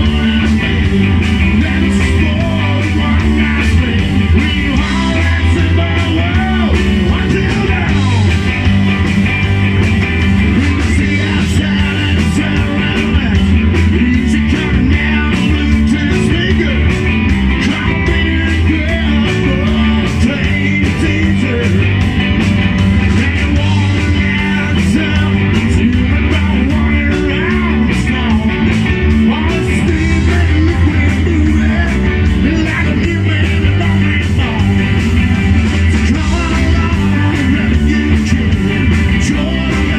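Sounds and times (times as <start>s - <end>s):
person singing: 0.0s - 8.5s, 10.5s - 16.9s, 23.1s - 35.2s, 36.0s - 39.9s
rock band playing live: 0.0s - 39.9s.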